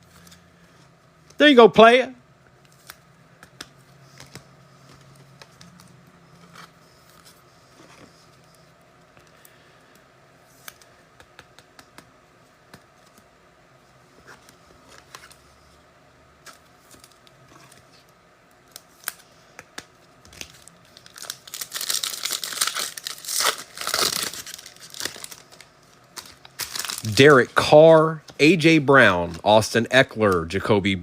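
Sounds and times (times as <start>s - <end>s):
foil wrapper being ripped open: 20.3s - 27.2s.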